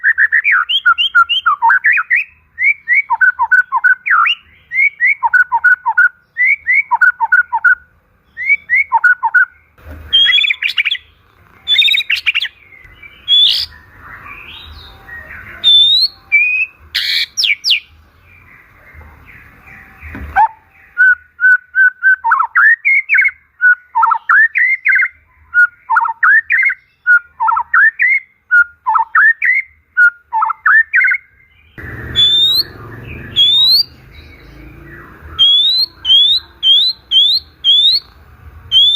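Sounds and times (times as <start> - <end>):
songbird whistling: 0.0 - 11.1, 11.7 - 18.8, 19.5 - 38.9
high rising bird whistles: 10.1 - 11.0, 13.2 - 17.8, 31.8 - 34.0, 35.3 - 38.1
low rumbling noise: 31.8 - 38.9.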